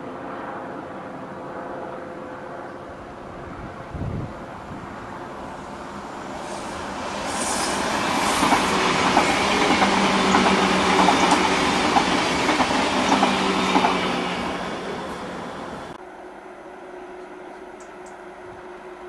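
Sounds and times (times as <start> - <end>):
steady train hum: 0.0 - 19.0
train wheels rushing on rail: 3.4 - 16.0.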